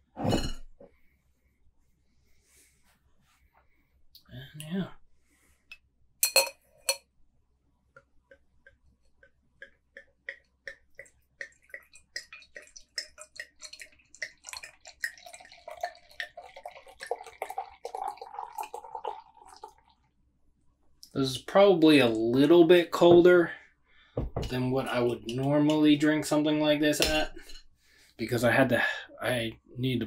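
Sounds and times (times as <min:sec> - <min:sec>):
beer glugging into a glass: 0:11.7 - 0:19.9.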